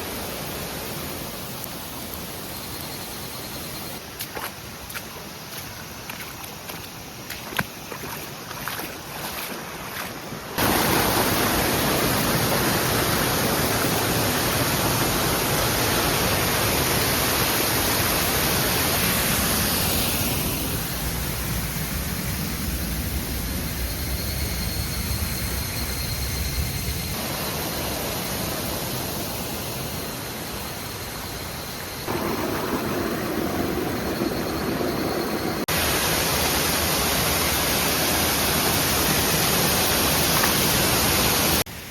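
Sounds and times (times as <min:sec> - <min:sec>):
flowing water rushing: 0:03.9 - 0:20.9, 0:32.1 - 0:41.9.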